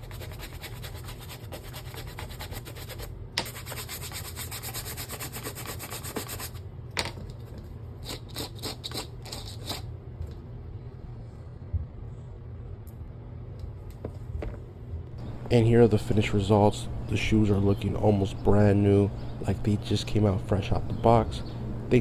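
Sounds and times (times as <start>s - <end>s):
brush scrubbing suede: 0.0s - 6.6s.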